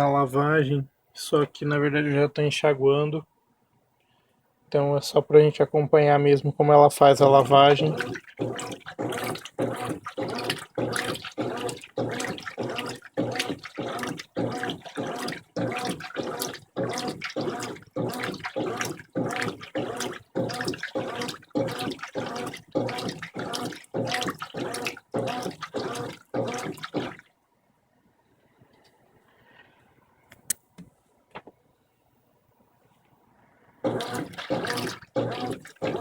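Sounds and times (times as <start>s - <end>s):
washing machine sloshing water: 7.0s - 27.3s, 33.8s - 36.0s.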